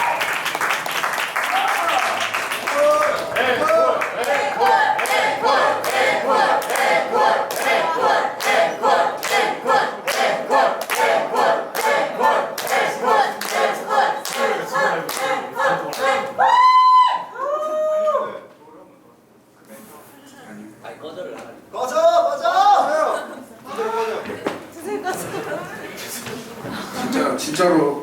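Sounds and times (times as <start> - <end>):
rhythmic clapping: 0.0 - 16.4
crowd chanting in unison: 4.2 - 16.4
loud high drawn-out shouts: 15.6 - 18.4.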